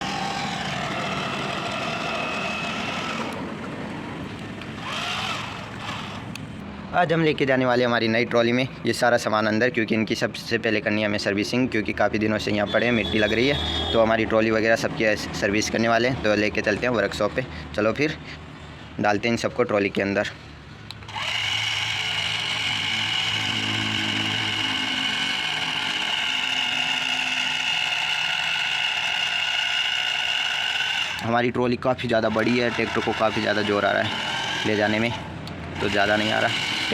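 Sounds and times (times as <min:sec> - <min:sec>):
electric motor and gear whine: 0:00.0 - 0:06.6, 0:20.9 - 0:31.4, 0:32.1 - 0:36.9
mechanical hum: 0:00.0 - 0:06.9, 0:20.4 - 0:31.3, 0:32.0 - 0:36.9.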